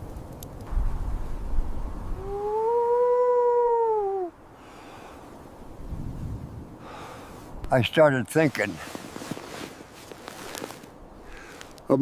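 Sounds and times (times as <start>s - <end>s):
low rumble of wind: 0.0s - 12.0s
wolf howling: 2.2s - 4.3s.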